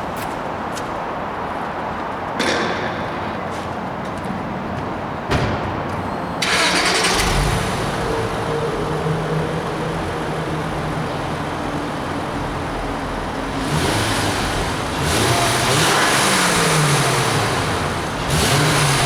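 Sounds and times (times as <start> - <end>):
car engine cranking and idling: 6.3 - 19.0.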